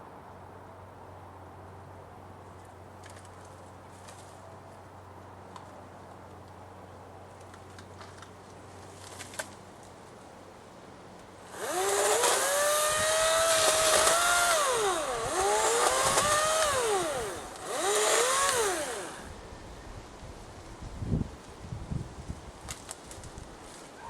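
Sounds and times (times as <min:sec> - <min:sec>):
chainsaw motor whining: 0:11.4 - 0:19.4.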